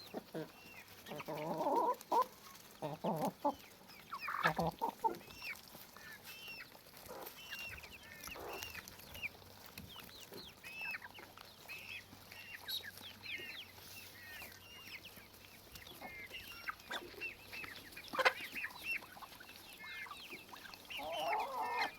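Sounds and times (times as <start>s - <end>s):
chickens clucking: 0.0s - 21.9s.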